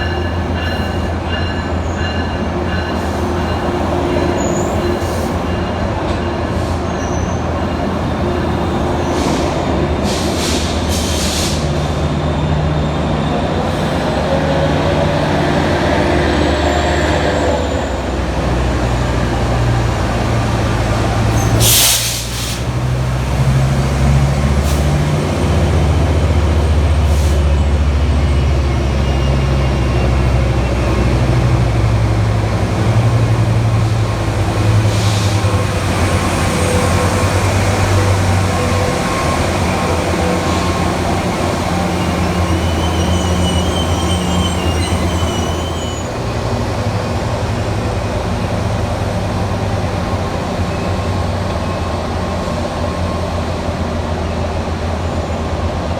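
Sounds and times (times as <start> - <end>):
diesel locomotive engine running: 7.4 - 55.9
short sharp air hiss: 21.6 - 22.7.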